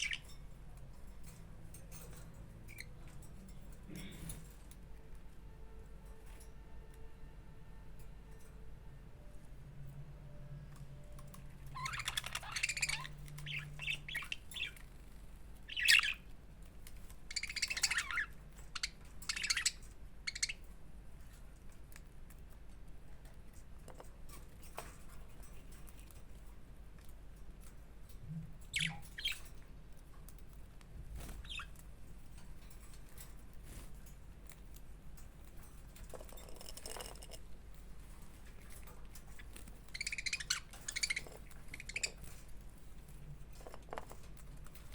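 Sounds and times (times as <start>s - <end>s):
budgerigars chirping: 0.0s - 0.3s, 11.7s - 14.9s, 15.7s - 16.3s, 17.3s - 20.6s, 28.7s - 29.5s, 31.4s - 31.7s, 39.4s - 42.4s.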